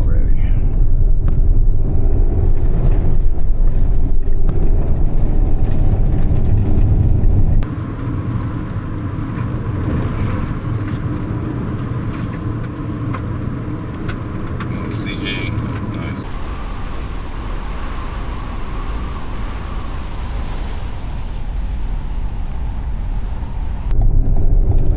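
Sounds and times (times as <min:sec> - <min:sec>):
car road and tyre rumble: 0:00.4 - 0:24.9
light hissy noise: 0:16.2 - 0:23.9.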